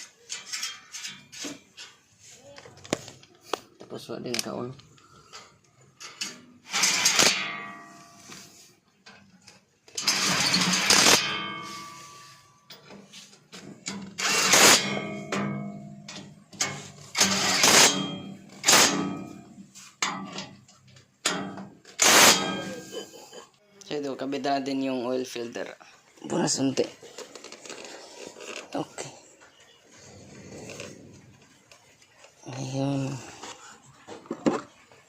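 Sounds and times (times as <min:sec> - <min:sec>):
power tool driving bolts: 0:06.0 - 0:07.5, 0:09.9 - 0:11.8, 0:13.8 - 0:19.4, 0:21.2 - 0:22.9.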